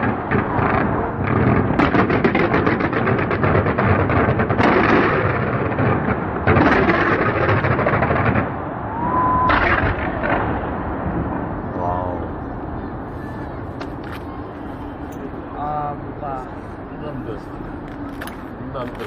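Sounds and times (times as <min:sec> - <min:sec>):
fireworks crackling and banging: 0:00.0 - 0:19.0
whistling firework shell: 0:08.9 - 0:10.2.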